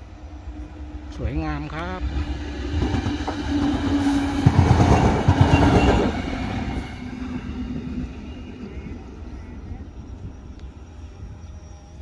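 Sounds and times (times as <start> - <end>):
train passing at speed: 0.0 - 12.0
wheels clacking over rail joints: 2.3 - 6.8.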